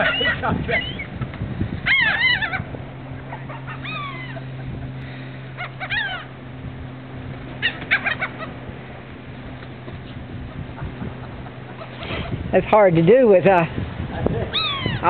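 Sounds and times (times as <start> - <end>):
harsh bird calls: 0.0 - 1.2, 1.8 - 6.6, 7.5 - 8.6, 14.5 - 15.0
steady low hum: 0.0 - 15.0.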